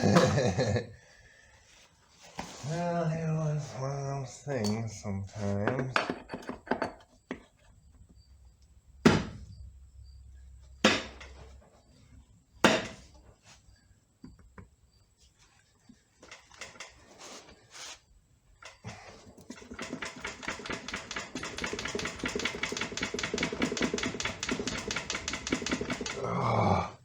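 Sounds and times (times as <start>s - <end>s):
sharp knocks on metal: 9.0s - 9.4s, 10.8s - 11.3s, 12.6s - 13.0s.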